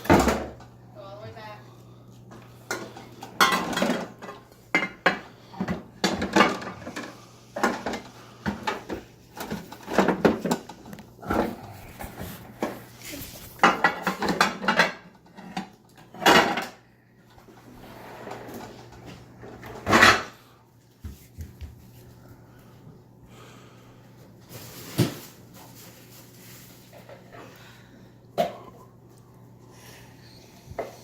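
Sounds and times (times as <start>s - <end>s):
dishes and cutlery clattering: 2.6s - 10.8s, 13.6s - 16.8s.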